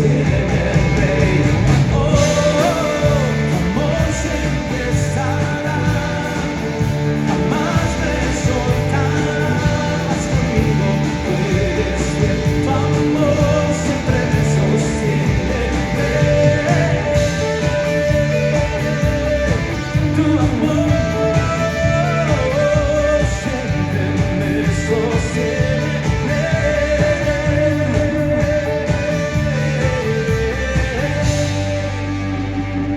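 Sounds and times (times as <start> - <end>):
guitars: 0.0 - 32.9
person singing: 0.0 - 32.9
steady bass: 0.0 - 32.9.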